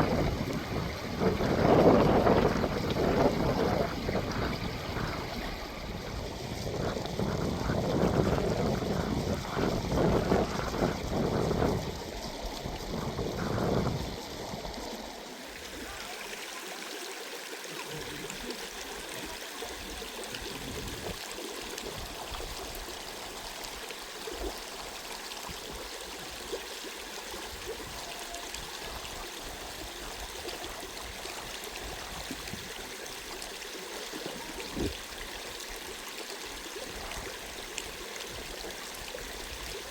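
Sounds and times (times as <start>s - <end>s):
gusty low rumbling: 0.0s - 14.9s
flowing mountain stream: 0.0s - 39.9s.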